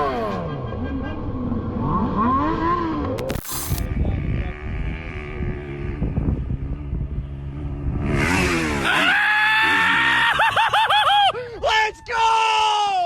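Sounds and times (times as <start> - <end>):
motorcycle engine revving: 1.4 - 9.9.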